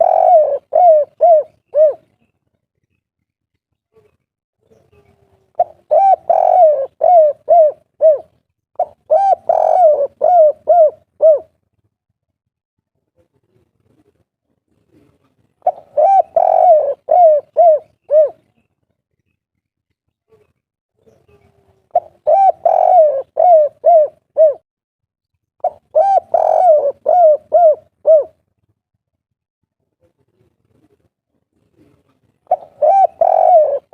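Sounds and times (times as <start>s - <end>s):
dove cooing: 0.0s - 2.2s, 4.9s - 11.6s, 15.0s - 18.6s, 21.3s - 24.6s, 25.6s - 28.4s, 31.8s - 33.9s.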